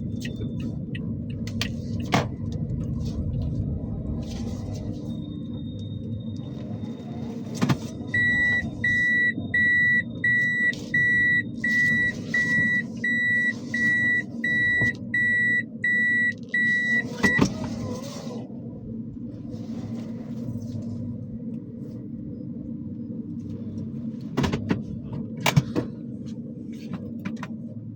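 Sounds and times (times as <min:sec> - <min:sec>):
car engine running: 0:00.0 - 0:27.7
electronic beeper high beeps: 0:08.1 - 0:17.4.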